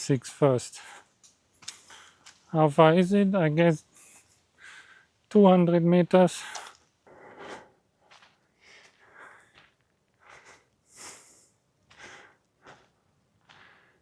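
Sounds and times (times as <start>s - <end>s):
person breathing while walking: 0.8s - 2.4s, 4.0s - 5.2s, 6.4s - 14.0s.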